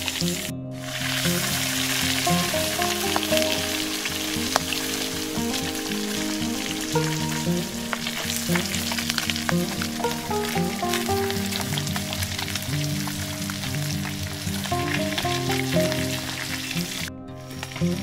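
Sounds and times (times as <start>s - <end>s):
background melody: 0.0s - 18.0s
fish sizzling in oil: 0.0s - 18.0s.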